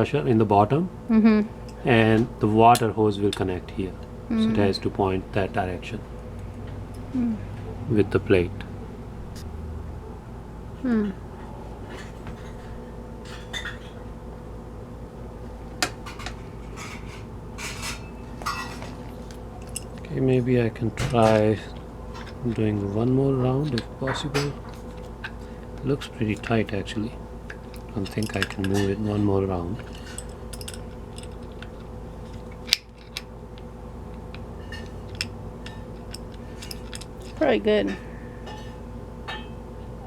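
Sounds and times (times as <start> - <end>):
steady low hum: 0.0 - 40.0
metal fitting clinking and clicking: 17.7 - 20.1, 27.5 - 37.4.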